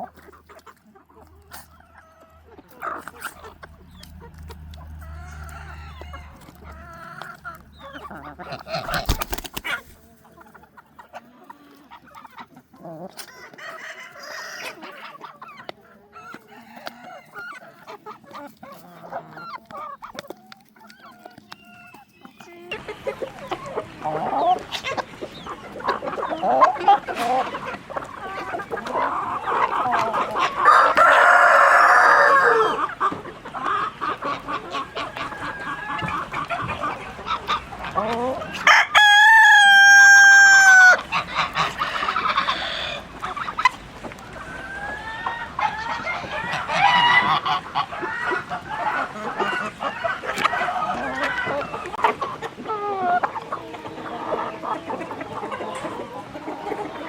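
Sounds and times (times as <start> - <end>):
chickens clucking: 0.0 - 57.0
rooster crowing: 30.6 - 32.8, 38.6 - 41.0.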